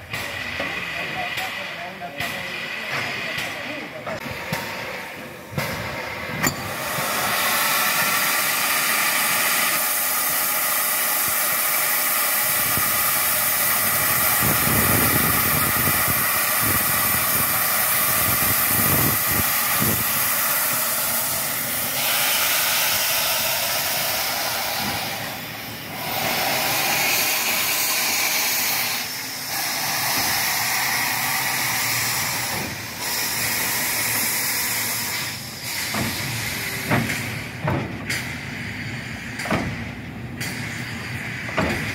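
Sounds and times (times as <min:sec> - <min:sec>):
steam locomotive hissing: 0:00.0 - 0:41.9.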